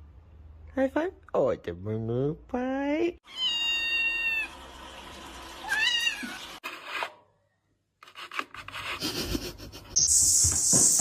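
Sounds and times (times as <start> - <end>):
cat meowing: 3.3 - 4.5
rubbing and scraping: 8.0 - 11.0.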